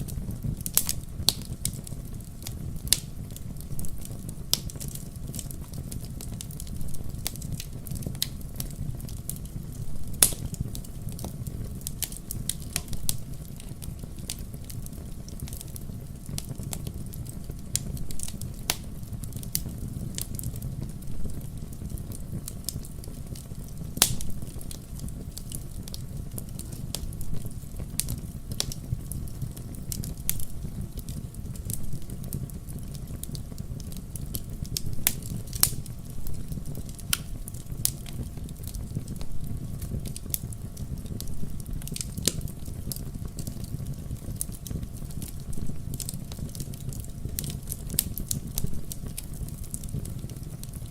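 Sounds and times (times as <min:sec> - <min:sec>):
fire crackling and popping: 0:00.0 - 0:50.9
fire rumbling: 0:00.0 - 0:50.9.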